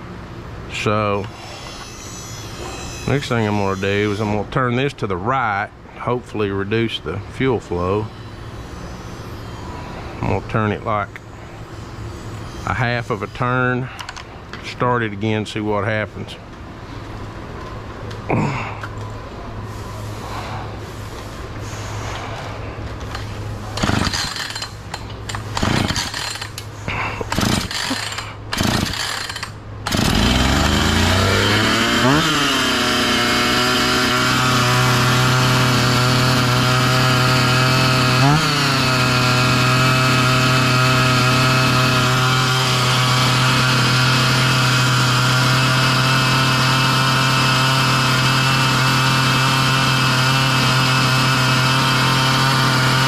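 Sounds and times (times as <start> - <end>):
chainsaw engine idling fast: 23.0 - 53.0
starter rope pulls: 23.0 - 53.0.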